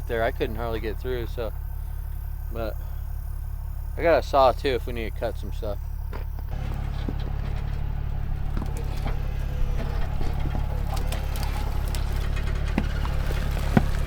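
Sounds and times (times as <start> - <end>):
truck engine running: 0.0 - 14.0
light clicks and knocks: 6.0 - 14.0.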